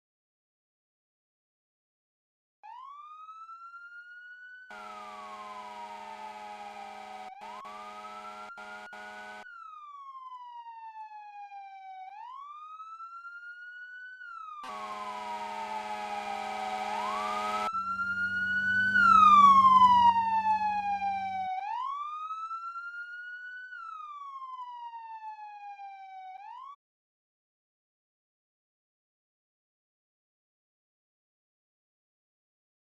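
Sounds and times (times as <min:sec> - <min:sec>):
low horn blasts: 0:04.7 - 0:09.5, 0:14.6 - 0:21.3
electronic siren wailing: 0:04.7 - 0:09.7, 0:14.3 - 0:22.8
vehicle rumble: 0:14.7 - 0:21.6.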